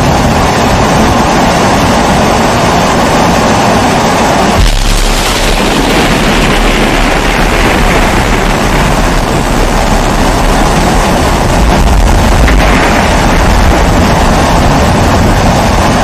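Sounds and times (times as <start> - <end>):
low rumble: 3.8 - 16.0.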